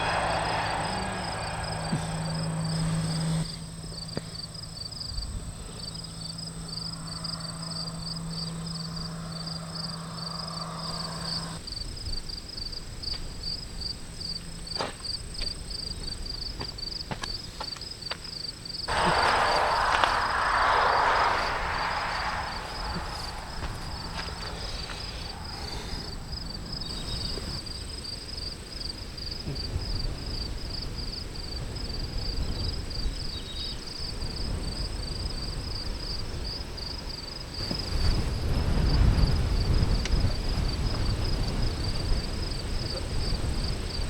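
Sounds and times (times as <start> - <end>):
rushing noise: 0.0 - 3.5, 18.9 - 26.9
insects chirping: 0.0 - 44.0.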